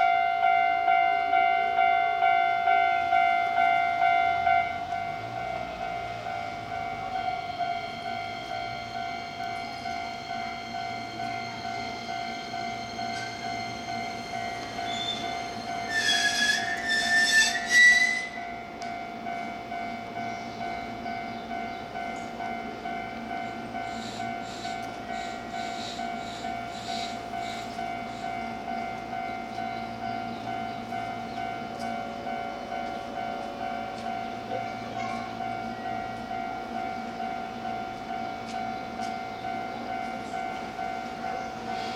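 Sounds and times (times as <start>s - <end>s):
electric train hum: 0.0s - 41.9s.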